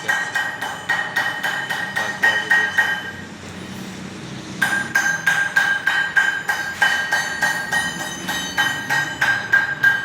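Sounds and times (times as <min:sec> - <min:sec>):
hammering on metal: 0:00.0 - 0:03.2, 0:04.6 - 0:10.0.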